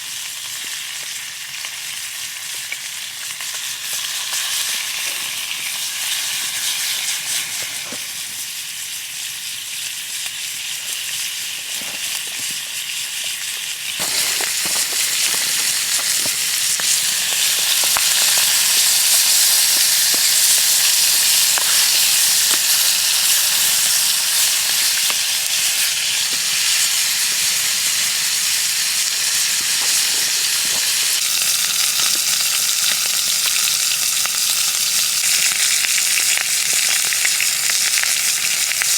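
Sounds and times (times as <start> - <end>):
food sizzling: 0.0 - 38.9
burning wood crackling: 13.9 - 27.6, 28.2 - 32.8.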